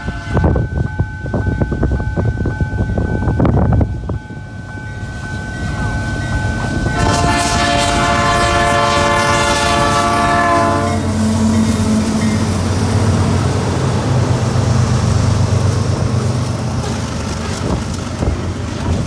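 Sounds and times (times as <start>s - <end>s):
locomotive air horn blast: 0.0s - 0.7s, 6.8s - 13.1s
rumble of passing train: 0.0s - 19.0s
locomotive engine: 4.0s - 19.0s.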